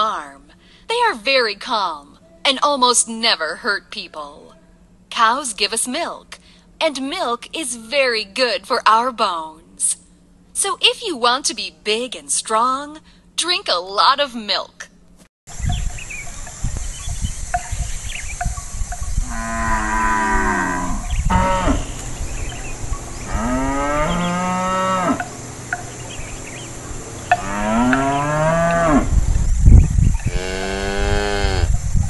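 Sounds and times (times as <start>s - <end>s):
cows mooing: 19.2s - 29.2s, 30.2s - 31.7s.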